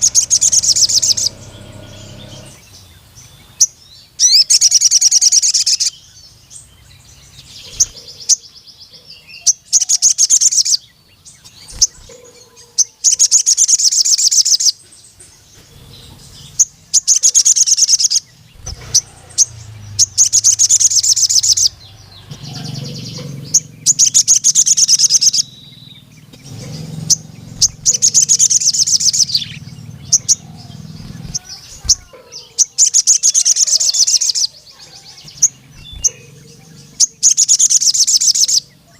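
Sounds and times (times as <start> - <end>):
bird trilling song: 0.0 - 38.9.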